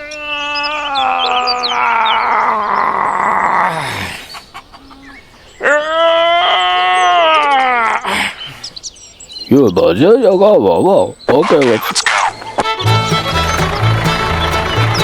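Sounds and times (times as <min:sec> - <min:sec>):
long animal calls: 0:00.0 - 0:08.8, 0:11.1 - 0:15.0
faint birds chirping: 0:00.0 - 0:15.0.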